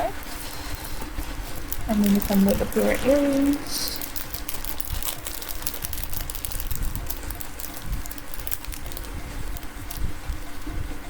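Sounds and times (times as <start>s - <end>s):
plastic packaging clicking and crinkling: 0.2s - 10.8s.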